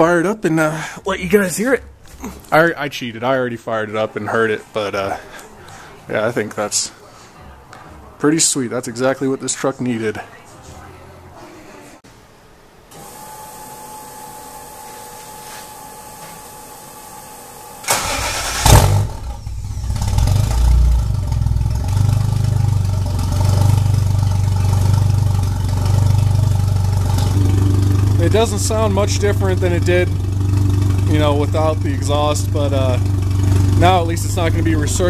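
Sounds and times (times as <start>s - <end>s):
starter motor cranking: 17.8s - 20.8s
engine starting and idling: 17.8s - 35.0s.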